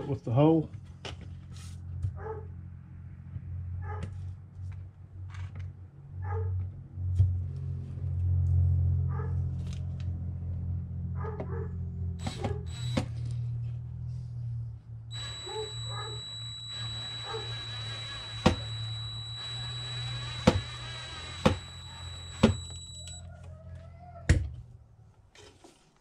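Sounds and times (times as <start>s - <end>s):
cordless drill driving screw: 12.2s - 13.2s, 15.1s - 23.2s
steady low hum: 12.2s - 13.2s, 14.3s - 23.3s.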